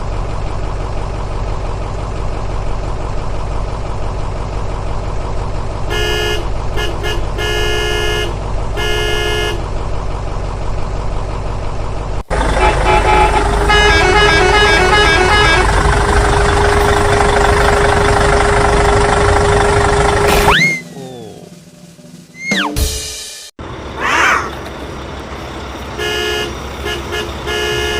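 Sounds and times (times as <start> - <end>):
engine rumble: 0.0 - 27.9
vehicle horn toots: 5.9 - 9.7, 12.4 - 15.9, 25.9 - 27.9
rising and falling whistle: 20.5 - 20.9, 22.4 - 22.8.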